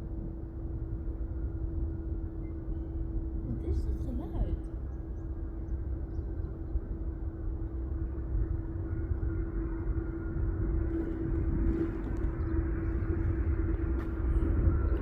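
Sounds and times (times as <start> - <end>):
jet engines rumbling: 3.0 - 15.0.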